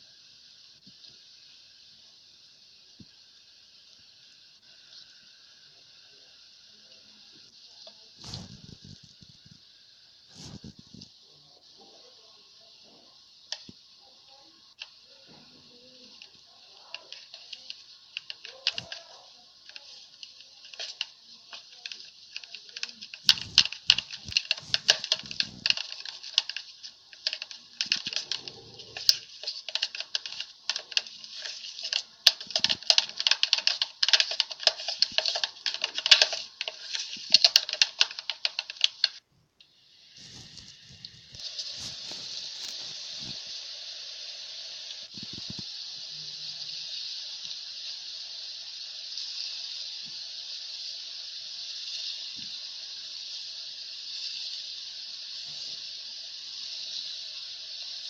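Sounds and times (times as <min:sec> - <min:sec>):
slime crackling and popping: 0:08.2 - 0:09.6, 0:16.1 - 0:39.2, 0:40.2 - 0:43.4.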